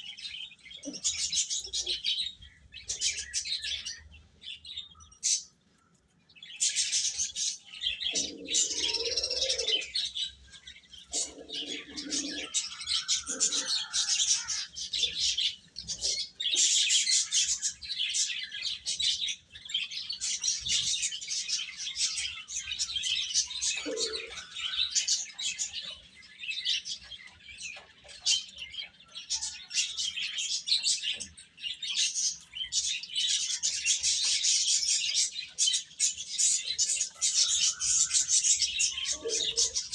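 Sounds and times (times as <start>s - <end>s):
chicks chirping: 32.1s - 39.9s.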